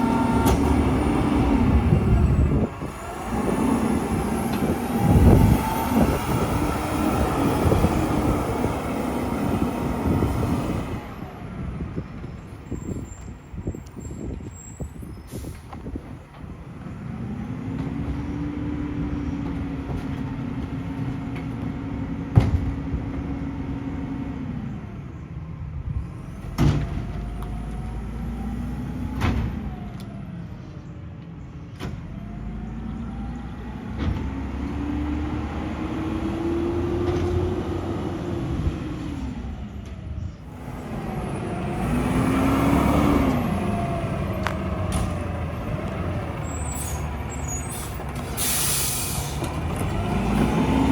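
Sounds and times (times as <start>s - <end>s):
garbage truck diesel engine revving: 0.0s - 12.0s, 32.0s - 39.7s, 40.4s - 50.9s.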